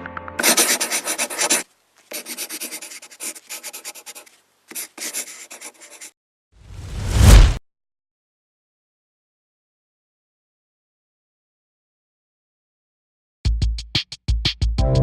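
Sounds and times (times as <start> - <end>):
quick rubbing or scratching strokes: 0.4 - 6.1.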